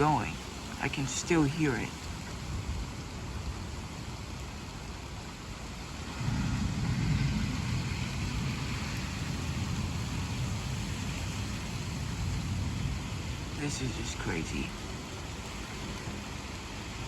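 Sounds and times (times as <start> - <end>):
rain hiss: 0.0 - 17.0
thunder rumbling: 6.0 - 16.3.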